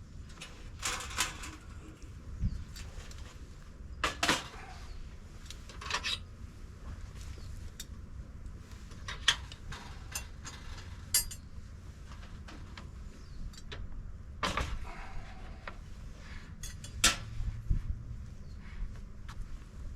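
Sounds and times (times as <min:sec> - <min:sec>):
metal camp gear clinking: 0:09.0 - 0:11.5, 0:16.6 - 0:17.3.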